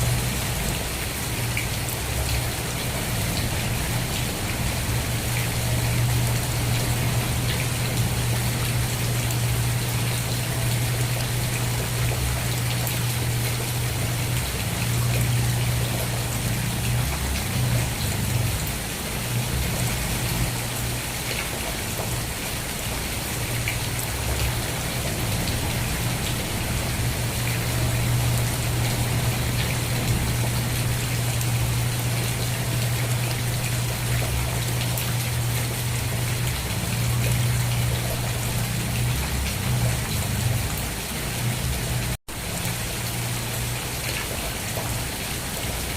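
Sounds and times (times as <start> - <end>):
steady rain: 0.0 - 45.9
constant low hum: 1.5 - 21.4.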